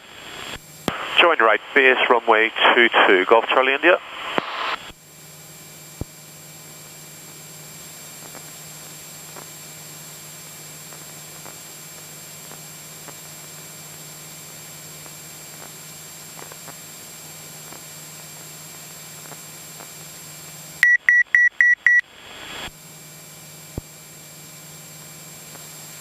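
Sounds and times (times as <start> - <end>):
intercom hiss and hum: 0.0 - 5.0.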